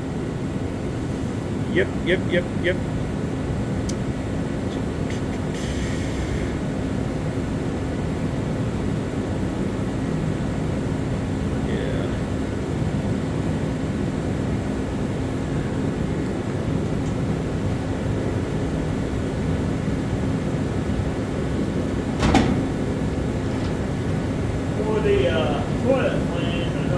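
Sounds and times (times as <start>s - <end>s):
low mechanical drone: 11.0s - 26.9s.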